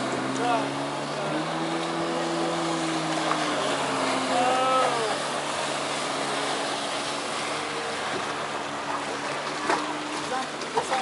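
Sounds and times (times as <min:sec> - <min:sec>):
jet ski engine running: 0:00.0 - 0:11.0
water and wind noise: 0:00.0 - 0:11.0.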